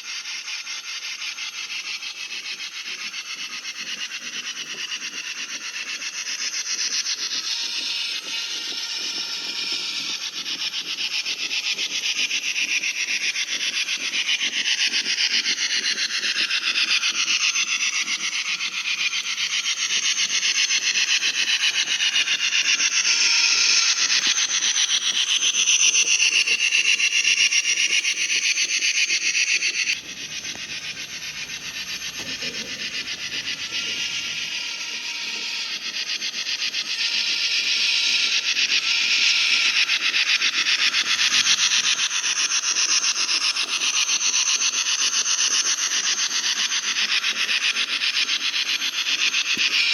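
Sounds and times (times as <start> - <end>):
model train wheels clattering: 6.8 - 37.0
whining tones sliding: 25.3 - 39.3.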